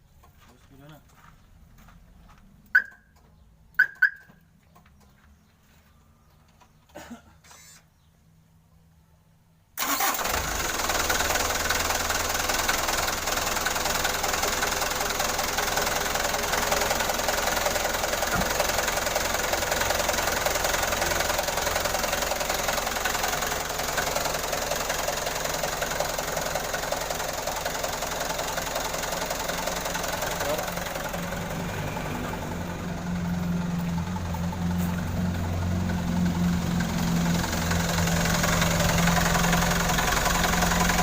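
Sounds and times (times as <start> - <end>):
engine starting and idling: 9.8 - 41.0.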